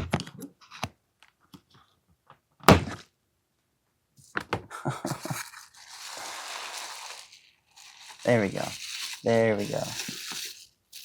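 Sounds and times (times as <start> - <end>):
box thunk on table: 2.7 - 3.0
rustling and scraping: 4.2 - 11.0.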